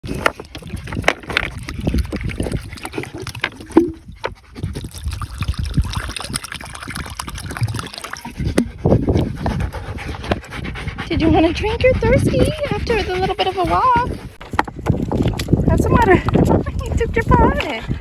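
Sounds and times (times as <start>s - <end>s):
water sloshing in a bowl: 0.2s - 14.3s.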